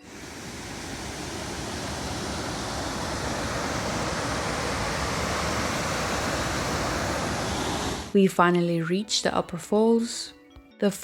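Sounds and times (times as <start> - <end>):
waterfall rushing: 0.0 - 8.1.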